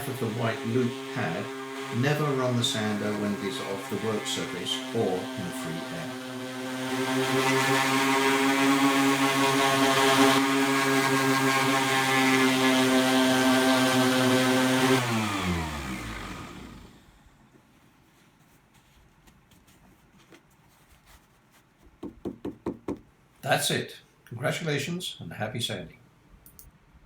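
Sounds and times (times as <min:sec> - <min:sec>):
orbital sander running: 0:00.0 - 0:17.2.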